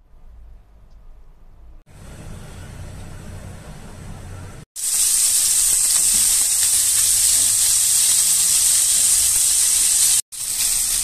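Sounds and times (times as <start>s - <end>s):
food sizzling in a pan: 4.8s - 11.0s.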